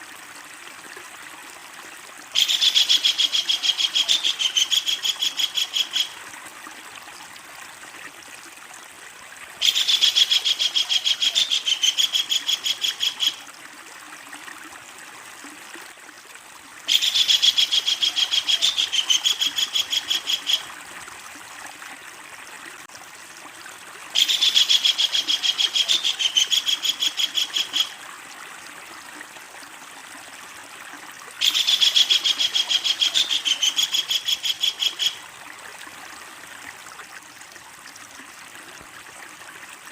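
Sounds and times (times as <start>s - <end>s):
kingfisher chattering call: 2.4s - 6.1s, 9.6s - 13.4s, 24.2s - 27.9s, 31.4s - 35.2s.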